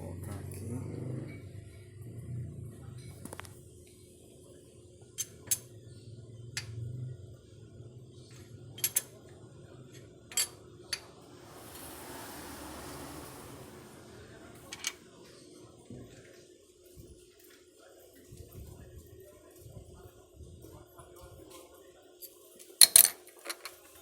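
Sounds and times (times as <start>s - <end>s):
soft hissing rush: 10.3s - 16.0s.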